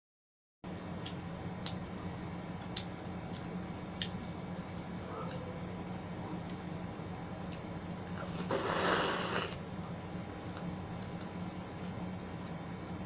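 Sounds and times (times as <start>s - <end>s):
steady low hum: 0.7s - 13.0s
eating clicks and smacks: 0.9s - 5.5s, 6.4s - 6.7s, 7.4s - 8.5s, 10.4s - 13.0s.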